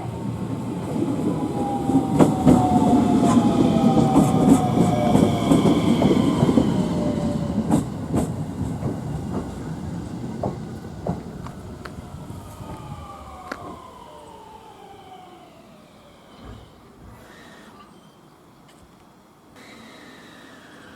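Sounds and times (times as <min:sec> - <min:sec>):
train motor whine: 0:00.1 - 0:17.6
train wheels clacking over rail joints: 0:02.0 - 0:12.8.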